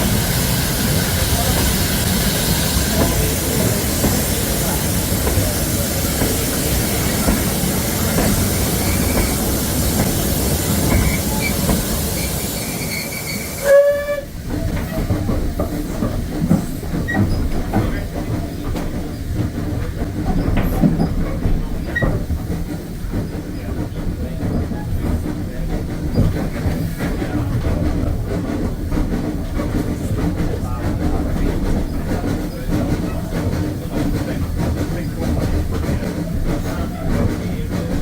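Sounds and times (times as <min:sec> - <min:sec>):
train running on rails: 0:00.0 - 0:38.0
high wheel squeals: 0:10.9 - 0:14.3
train whistle toot: 0:12.2 - 0:14.3.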